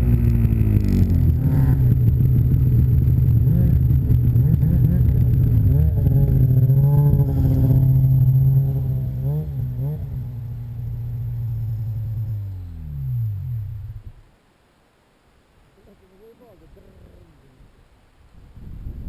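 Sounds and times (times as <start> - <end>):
snowmobile engine under throttle: 0.0 - 14.0.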